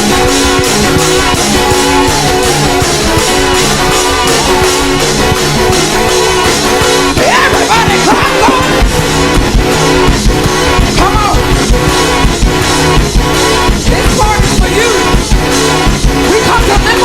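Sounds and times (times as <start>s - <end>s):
voices crying out: 0.0s - 6.3s, 7.0s - 8.9s
live band playing fast music: 0.0s - 17.0s.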